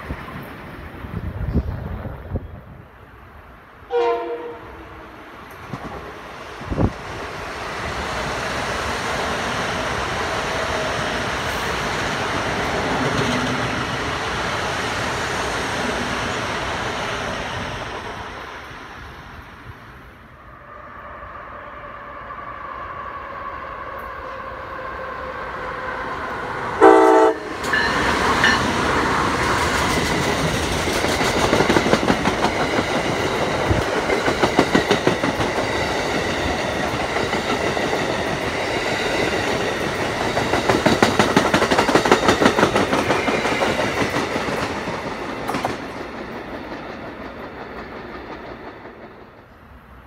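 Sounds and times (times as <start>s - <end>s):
train passing at speed: 0.0s - 50.0s
train horn blast: 3.9s - 5.3s, 26.8s - 27.9s
train wheels clicking: 5.4s - 18.5s, 27.5s - 50.0s.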